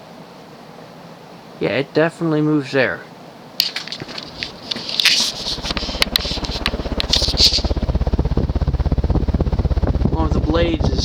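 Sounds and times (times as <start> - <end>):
ceiling fan buffeting microphone: 0.0 - 11.0
rustling and clicking: 3.6 - 7.9.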